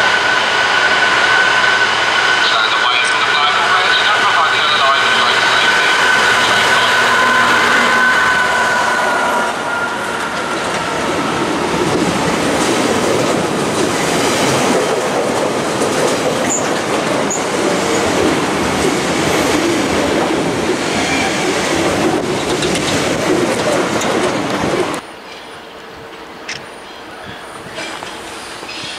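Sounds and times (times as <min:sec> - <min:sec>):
diesel locomotive engine: 0:00.0 - 0:28.9
train wheels rumbling on rail: 0:00.0 - 0:28.9
high wheel squeals: 0:05.1 - 0:10.4.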